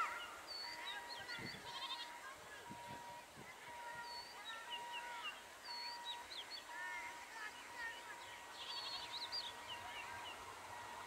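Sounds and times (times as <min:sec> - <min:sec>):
birds chirping and calling: 0:00.0 - 0:02.1, 0:04.0 - 0:10.4
faint steady high tone: 0:00.0 - 0:11.0.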